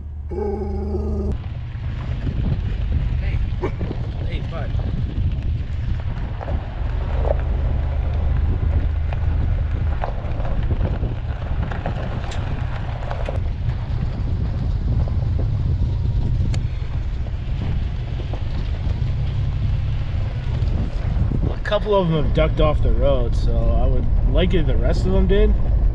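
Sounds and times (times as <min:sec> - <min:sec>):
van driving slowly: 0:00.0 - 0:25.9
wind buffeting microphone: 0:00.0 - 0:25.9.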